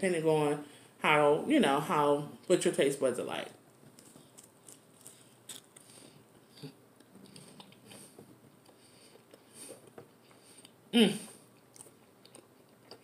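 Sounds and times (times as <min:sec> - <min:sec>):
chewing: 0:03.9 - 0:10.8, 0:11.5 - 0:13.0.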